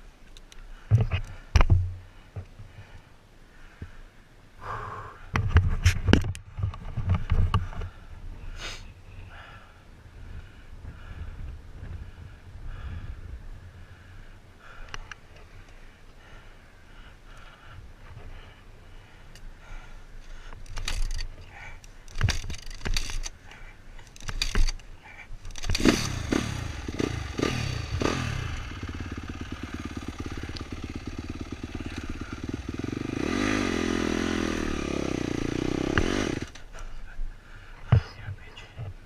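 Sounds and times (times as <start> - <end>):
dirt bike kick-start clatter: 20.5 - 36.7
dirt bike engine running: 25.6 - 36.6.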